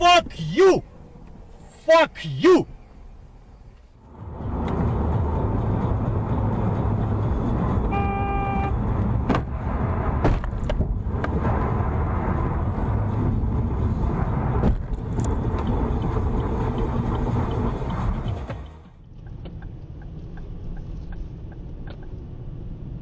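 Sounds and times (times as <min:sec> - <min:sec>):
car road and engine rumble: 0:00.0 - 0:23.0
car horn: 0:07.8 - 0:08.8.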